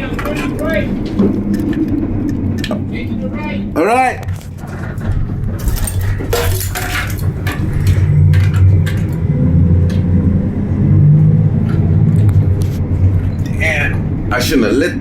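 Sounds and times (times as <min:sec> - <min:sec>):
vehicle engine and road rumble: 0:00.0 - 0:15.0
load rattling and clicking: 0:04.2 - 0:10.1.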